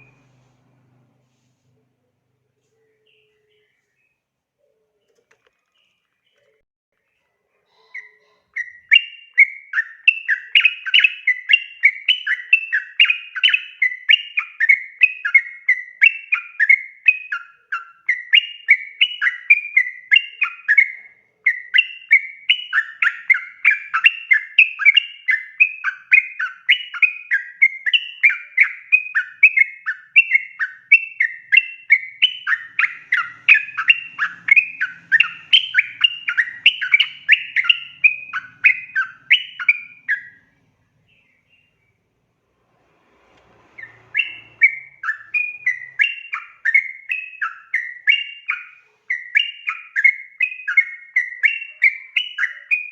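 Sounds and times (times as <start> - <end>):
bulbul singing chattering notes: 31.0 - 40.4.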